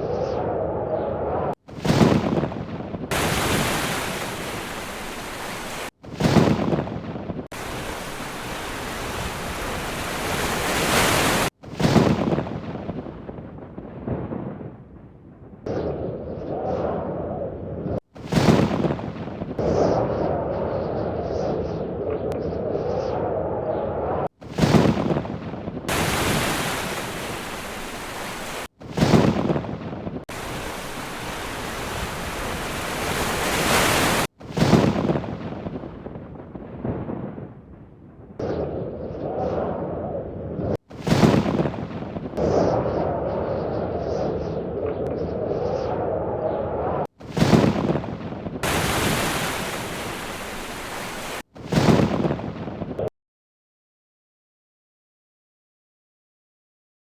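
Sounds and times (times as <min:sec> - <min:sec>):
thunderclap: 0:01.7 - 0:16.2, 0:24.4 - 0:38.8
heavy rain pouring: 0:03.1 - 0:05.9, 0:07.6 - 0:11.5, 0:25.9 - 0:28.7, 0:30.3 - 0:34.3, 0:48.6 - 0:51.4.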